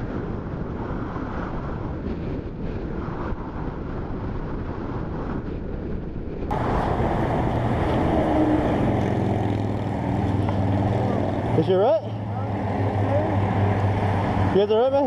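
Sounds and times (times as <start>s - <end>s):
wind buffeting microphone: 0.0s - 15.0s
motorcycle engine rumble: 6.5s - 15.0s.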